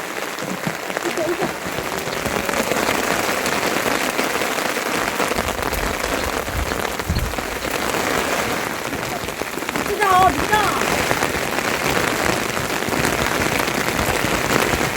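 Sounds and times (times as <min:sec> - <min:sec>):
rain falling: 0:00.0 - 0:14.9.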